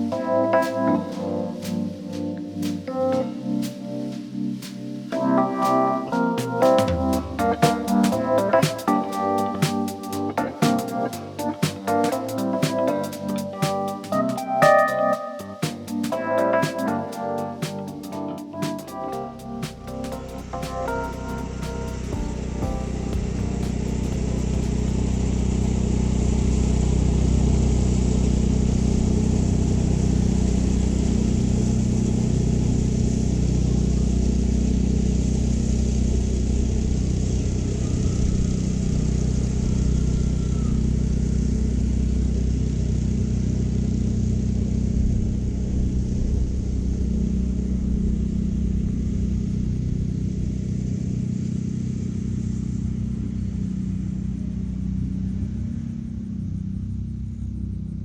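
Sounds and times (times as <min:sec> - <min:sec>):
mower engine drone: 0:15.2 - 0:58.0.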